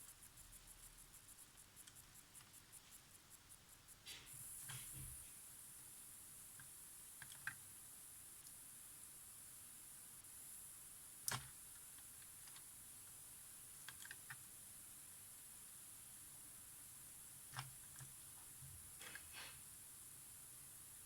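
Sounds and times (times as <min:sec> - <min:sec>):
faint ticks: 0:00.0 - 0:05.9, 0:06.5 - 0:07.7, 0:08.4 - 0:08.6, 0:11.2 - 0:14.5
steady hiss: 0:00.0 - 0:21.0
sharp clicks: 0:11.2 - 0:12.7.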